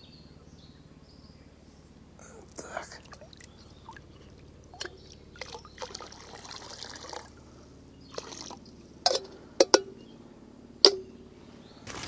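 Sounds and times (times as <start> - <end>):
water pouring: 4.8 - 7.4, 8.2 - 9.8
sharp knocks: 10.9 - 11.3.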